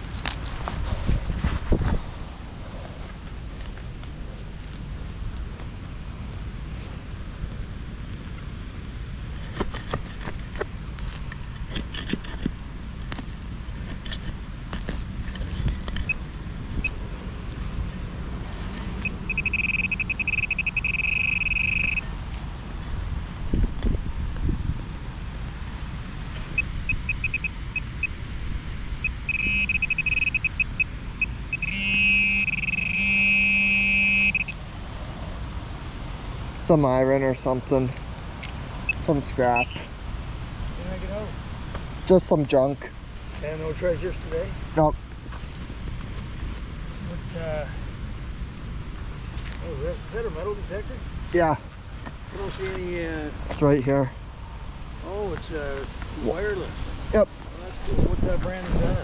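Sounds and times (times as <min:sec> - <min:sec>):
metal detector long tone: 0:18.8 - 0:22.1, 0:26.5 - 0:28.2, 0:29.0 - 0:34.6, 0:38.9 - 0:39.8
metal detector short high beeps: 0:19.0 - 0:22.1, 0:26.5 - 0:28.2, 0:29.0 - 0:34.6, 0:39.6 - 0:39.8
wind buffeting microphone: 0:22.4 - 0:26.2, 0:55.5 - 0:59.0.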